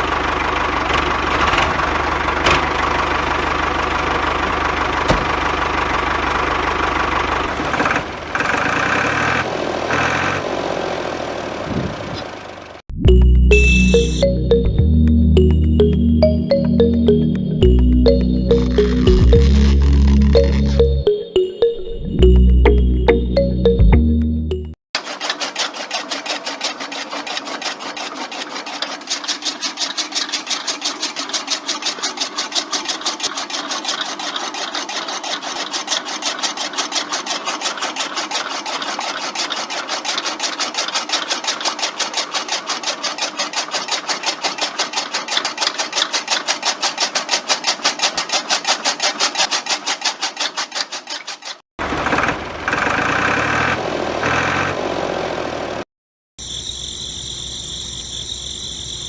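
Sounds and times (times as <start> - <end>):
model machine motor clattering: 25.0 - 53.6.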